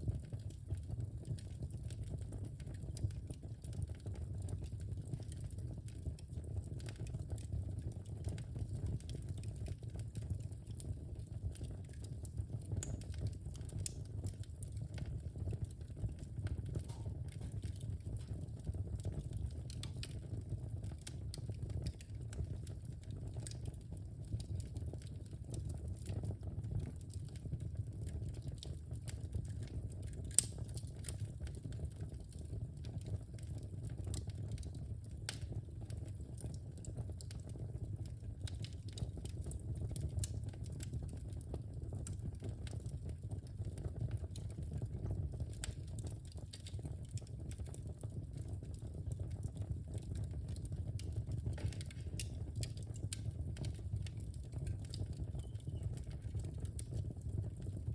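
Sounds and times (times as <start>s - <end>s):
low rumble of flames: 0.0s - 57.9s
wood fire crackling: 0.0s - 57.9s
sharp pop from fire: 16.8s - 17.6s.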